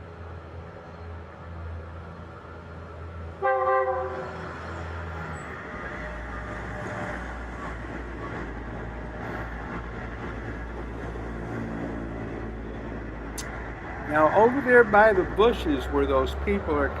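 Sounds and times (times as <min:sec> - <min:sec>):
train rumbling on tracks: 0:00.0 - 0:17.0
train horn blast: 0:03.4 - 0:04.4.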